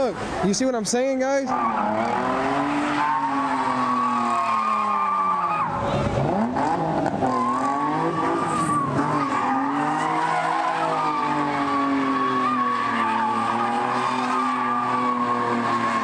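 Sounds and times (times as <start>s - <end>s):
car engine revving hard: 1.5s - 16.0s
tyres squealing: 7.2s - 16.0s.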